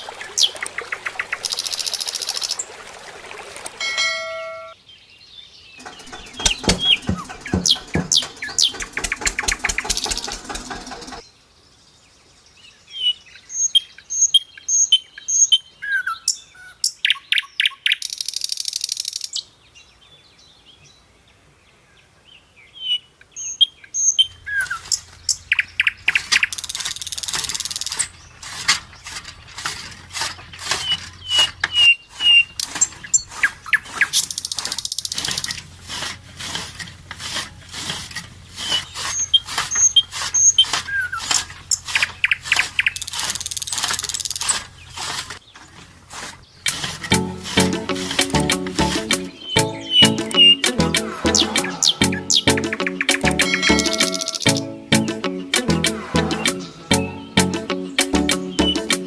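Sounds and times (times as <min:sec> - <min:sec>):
birds chirping: 0:00.0 - 0:02.8, 0:03.6 - 0:11.4, 0:22.7 - 0:35.7, 0:37.6 - 0:45.8, 0:46.4 - 0:59.0
rapid clicking: 0:05.8 - 0:11.2.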